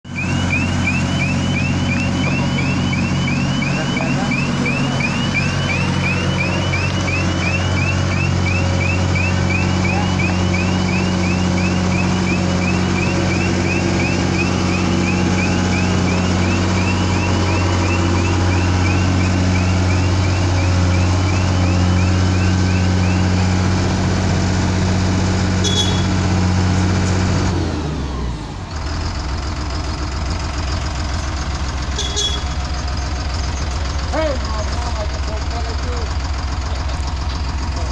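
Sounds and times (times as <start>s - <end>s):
diesel engine running under load: 0.0s - 37.9s
chirping warning alarm: 0.1s - 24.4s, 25.4s - 27.0s, 30.2s - 37.8s.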